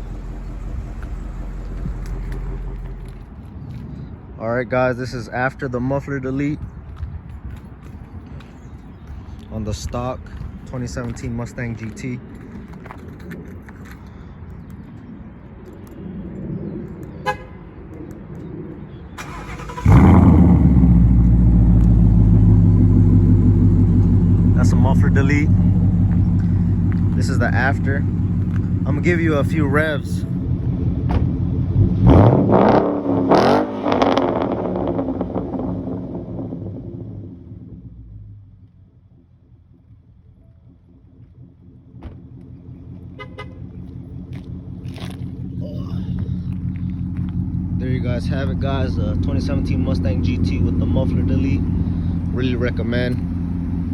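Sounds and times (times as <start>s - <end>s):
car engine starting and idling: 0.0s - 3.8s, 19.1s - 53.9s.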